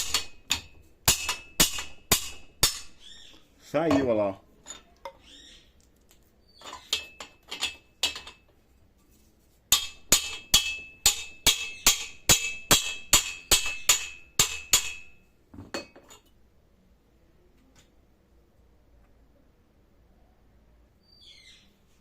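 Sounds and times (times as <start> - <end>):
hammer striking steel drift: 0.0 - 3.0, 9.7 - 15.2.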